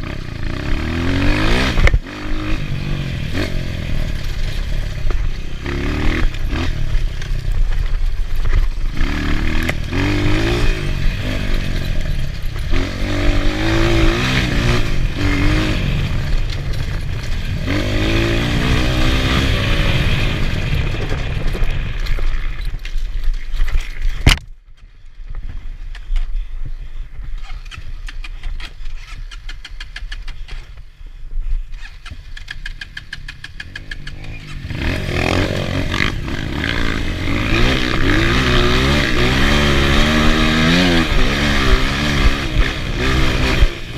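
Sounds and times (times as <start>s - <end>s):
motorcycle engine revving: 0.0s - 22.8s, 31.7s - 43.9s
wind noise: 0.8s - 29.4s.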